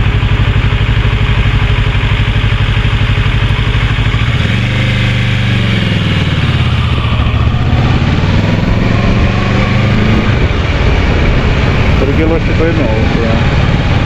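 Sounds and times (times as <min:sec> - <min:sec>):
motorcycle engine running: 0:00.0 - 0:14.0
wind noise: 0:05.9 - 0:14.0.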